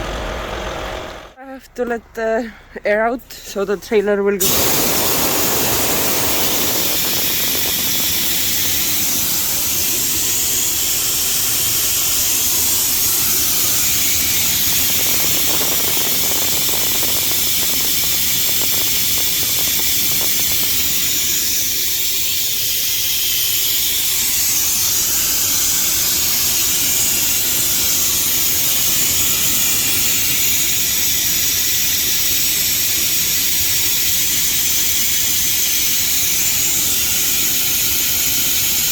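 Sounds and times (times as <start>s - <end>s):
compressed air hissing: 4.4s - 38.9s.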